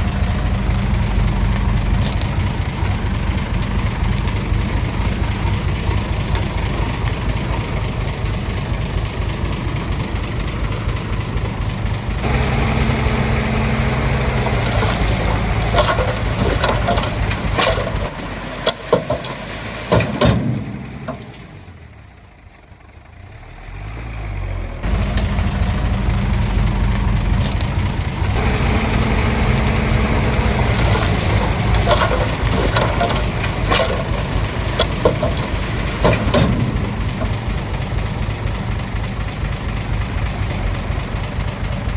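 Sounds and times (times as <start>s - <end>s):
heavy diesel engine running: 0.0s - 41.9s
sharp metal clanks: 12.2s - 21.6s, 29.4s - 37.6s.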